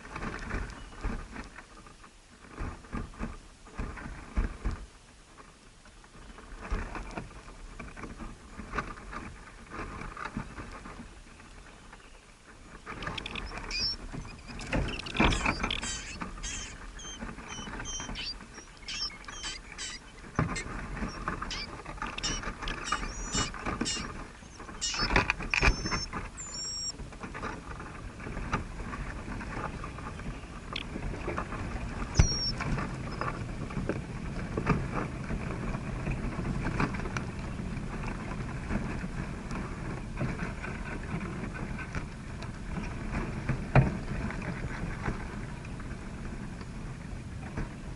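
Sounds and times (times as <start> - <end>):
small birds chirping: 11.5 - 26.9, 32.1 - 33.4
scratching and rustling: 12.4 - 35.7
clicks: 12.9 - 26.9.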